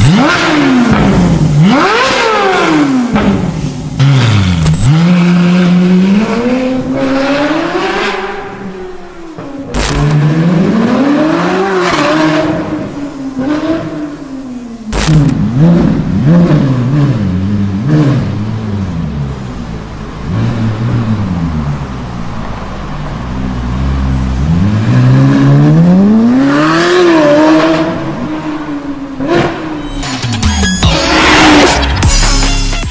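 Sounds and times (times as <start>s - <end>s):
exhaust cracks: 0.0s - 8.2s, 9.2s - 10.8s, 14.9s - 18.7s
sports car engine revving: 0.0s - 29.9s.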